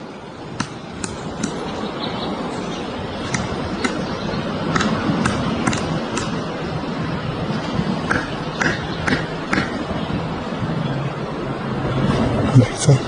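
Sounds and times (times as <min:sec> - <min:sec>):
woodpecker tapping on wood: 0:00.6 - 0:01.7, 0:03.2 - 0:06.4, 0:08.1 - 0:09.8.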